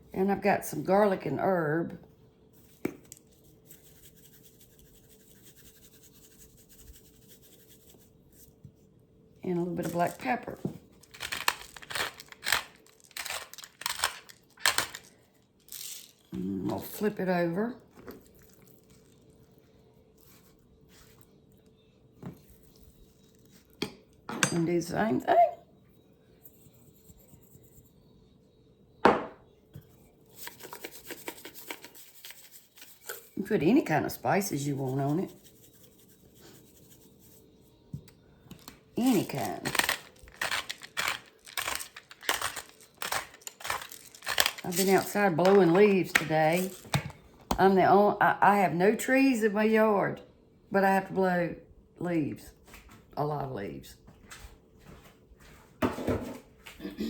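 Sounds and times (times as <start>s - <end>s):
seasoning container rasping: 39.1s - 46.9s.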